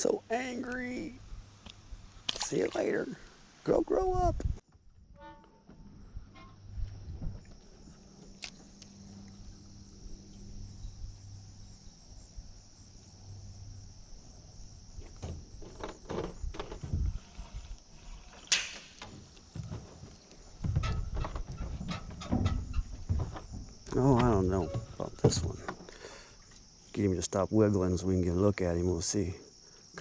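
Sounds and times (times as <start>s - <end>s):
steady high hiss: 16.2s - 20.7s.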